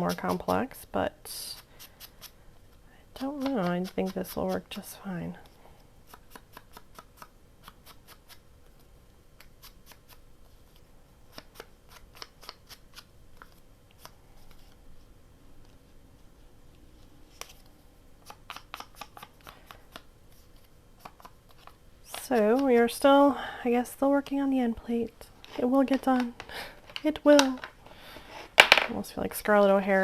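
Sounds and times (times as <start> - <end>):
scissors snipping paper: 3.2 - 4.6.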